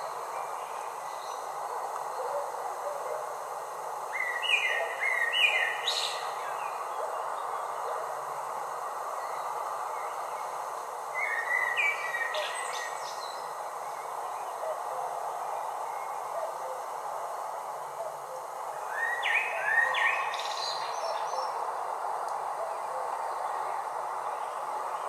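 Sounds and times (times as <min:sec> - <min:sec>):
steady hiss: 0:00.0 - 0:25.0
birds whistling calls: 0:11.2 - 0:13.4, 0:18.8 - 0:21.6.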